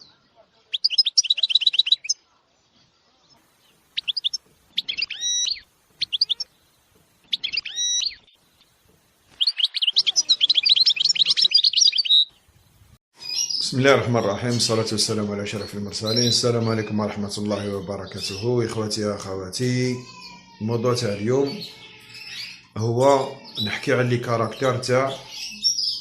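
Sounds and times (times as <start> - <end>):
finch singing trills and twitters: 0.7 - 2.2, 3.7 - 6.7, 7.3 - 26.0.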